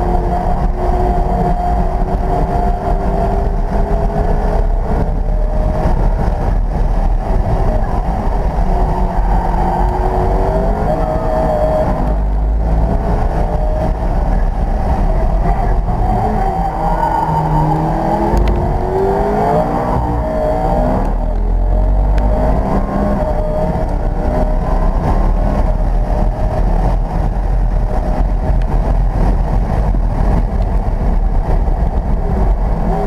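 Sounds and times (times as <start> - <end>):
car engine revving: 0.0 - 33.0
road and wind rumble: 0.0 - 33.0.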